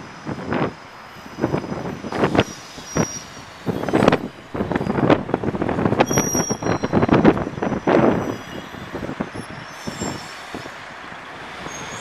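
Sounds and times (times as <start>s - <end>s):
train rumbling: 0.0s - 12.0s
high brake squeal: 0.2s - 12.0s.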